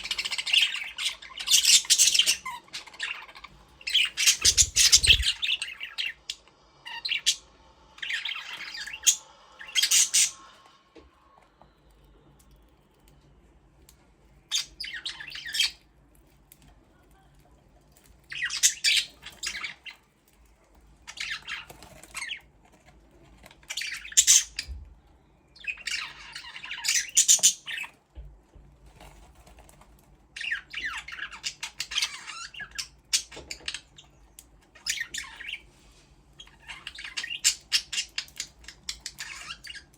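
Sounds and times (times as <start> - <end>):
budgerigars chirping: 0.0 - 10.5, 23.7 - 24.7, 25.6 - 27.9, 36.4 - 39.9.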